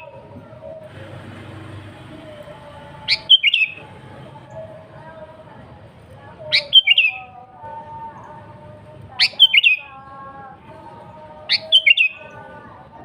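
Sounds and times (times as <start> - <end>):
faint steady tones: 0.0 - 13.0
bird song phrases: 2.3 - 5.3, 6.4 - 13.0.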